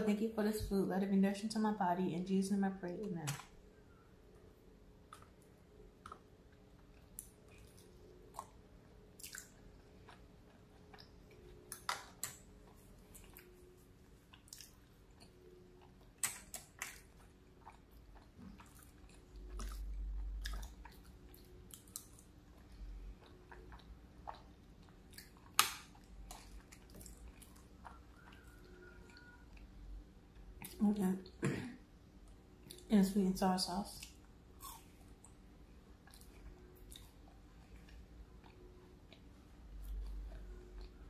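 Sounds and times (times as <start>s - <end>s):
person chewing food: 5.0s - 30.8s, 34.0s - 41.0s.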